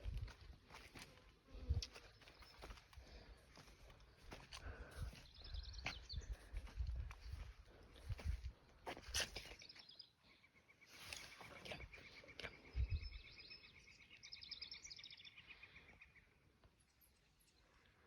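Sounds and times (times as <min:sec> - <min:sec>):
bird chirping: 0:09.5 - 0:17.8.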